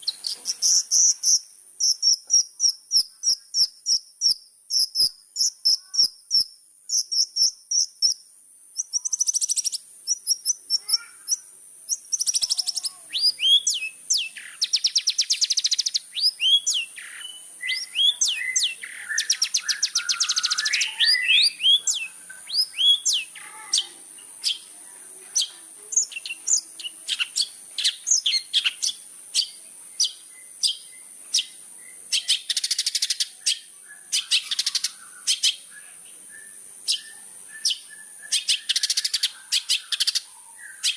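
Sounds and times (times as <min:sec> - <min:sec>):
shrike chattering song: 0:00.0 - 0:08.2, 0:08.8 - 0:40.9
harsh buzzy rasping calls: 0:08.8 - 0:29.7.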